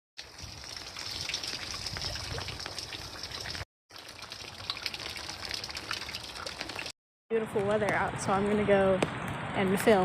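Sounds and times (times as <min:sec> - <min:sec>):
rain with sharp drop ticks: 0:00.2 - 0:06.9.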